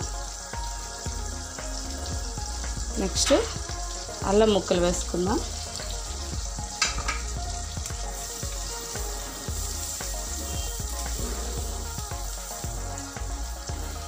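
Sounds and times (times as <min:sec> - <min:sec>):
garlic sizzling in butter: 0:00.0 - 0:14.0.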